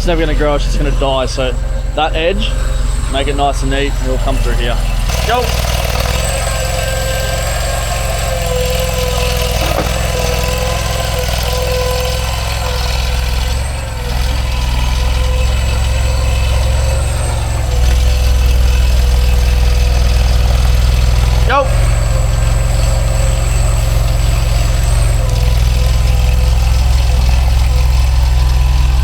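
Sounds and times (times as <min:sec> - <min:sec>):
thin steady whine: 0:00.0 - 0:07.7
mini loader engine running: 0:00.0 - 0:29.0.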